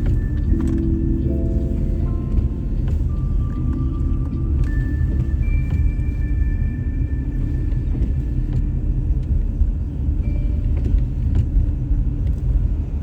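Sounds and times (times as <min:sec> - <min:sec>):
car driving on snowy road: 0:00.0 - 0:13.0.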